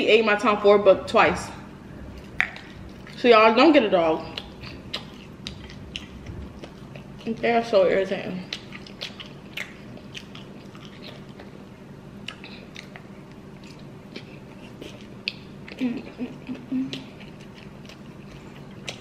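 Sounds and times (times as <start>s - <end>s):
wet chewing and biting: 2.0s - 3.2s, 4.2s - 7.4s, 8.4s - 11.6s, 16.9s - 19.0s.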